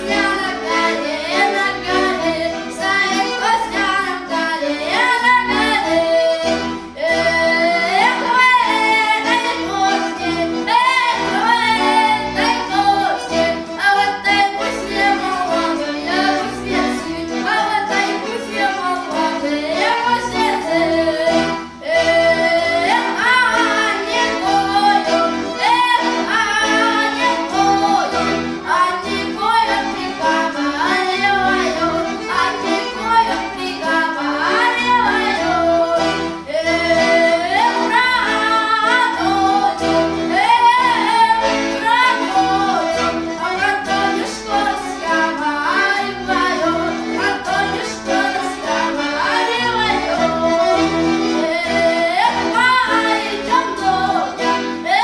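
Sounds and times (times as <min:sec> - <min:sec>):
women singing folk song: 0:00.0 - 0:55.0.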